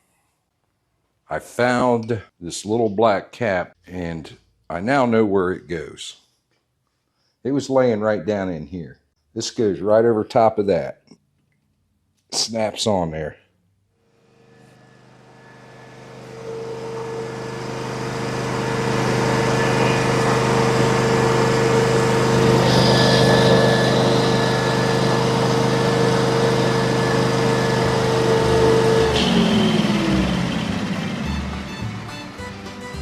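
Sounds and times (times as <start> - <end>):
welder engine running with whine: 14.2 - 33.0.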